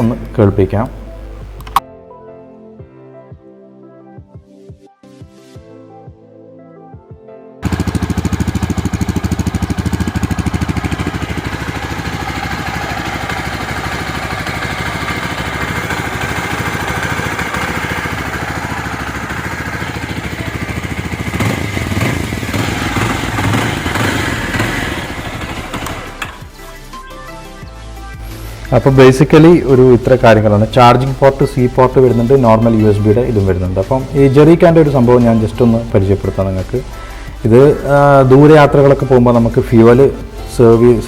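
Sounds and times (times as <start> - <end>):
engine revving: 7.6 - 26.5
motorcycle engine idling: 7.6 - 26.6, 28.4 - 41.0.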